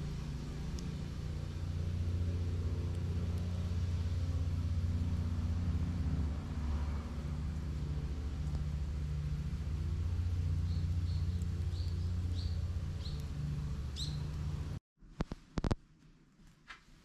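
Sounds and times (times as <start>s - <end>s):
low motor hum: 0.0s - 14.8s
bird chirping: 10.4s - 14.8s.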